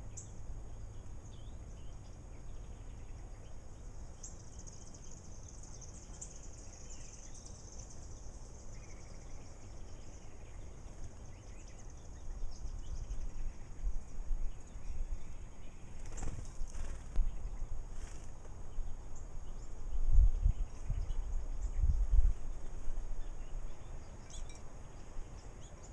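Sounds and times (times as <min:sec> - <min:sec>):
wind rumble on microphone: 0:08.8 - 0:25.9.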